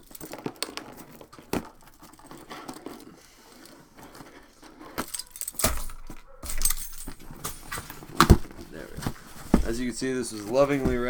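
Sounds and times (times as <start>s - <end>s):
key scraping through tape: 0.0s - 8.9s
cardboard rustling: 0.0s - 11.0s
handling knocks: 0.0s - 11.0s
key jangling on ring: 4.8s - 8.1s.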